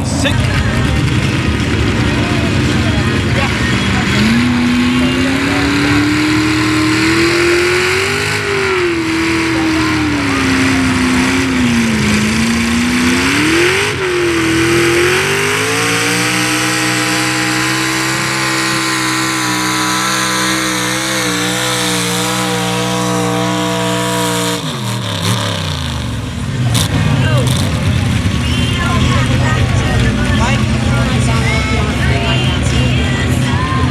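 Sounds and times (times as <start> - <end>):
truck engine revving high: 0.0 - 33.9.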